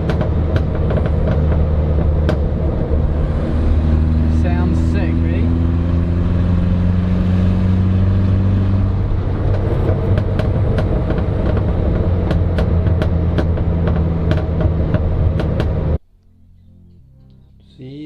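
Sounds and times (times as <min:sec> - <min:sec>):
exhaust pops and crackles: 0:00.0 - 0:05.9, 0:08.1 - 0:16.0
car engine running: 0:00.0 - 0:16.0.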